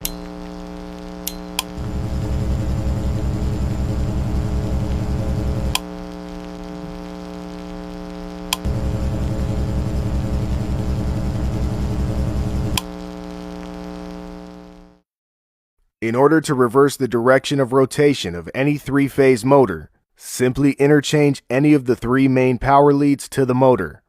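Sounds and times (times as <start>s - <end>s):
switch click: 0.0s - 0.3s, 1.2s - 1.8s, 8.5s - 8.7s, 12.7s - 12.9s
electric motor pulsing hum: 0.0s - 15.0s
steady electrical hum: 0.0s - 15.0s.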